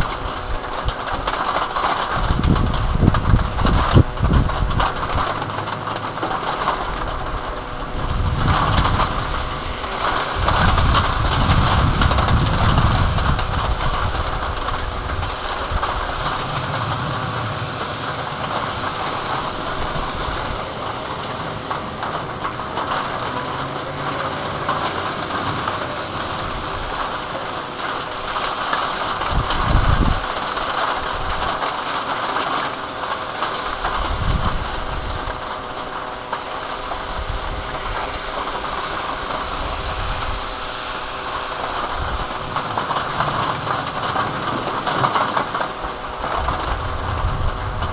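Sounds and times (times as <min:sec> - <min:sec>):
heavy rain hissing: 0:00.0 - 0:47.9
deep thunder rumbles: 0:25.5 - 0:36.2, 0:46.3 - 0:47.9.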